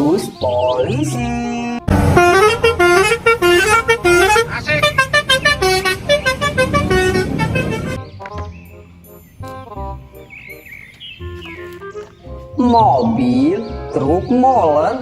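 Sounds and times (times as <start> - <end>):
musical horn playing a tune: 1.3 - 8.5.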